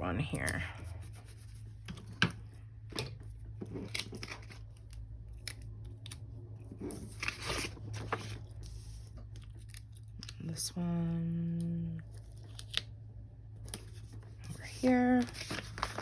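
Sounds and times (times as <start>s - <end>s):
paper crinkling and rustling: 3.2s - 10.4s, 13.5s - 16.0s.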